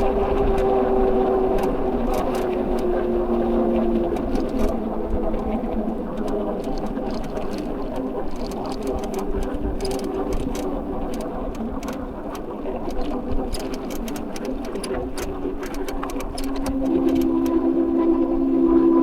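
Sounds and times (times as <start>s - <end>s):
light clicks: 4.0s - 17.6s.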